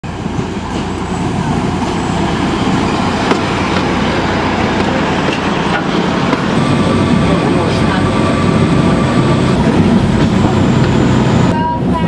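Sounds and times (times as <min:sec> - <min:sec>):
diesel locomotive engine rumbling: 0:00.0 - 0:12.0
sharp clicks from train: 0:00.3 - 0:01.0, 0:03.2 - 0:03.9, 0:04.7 - 0:06.5.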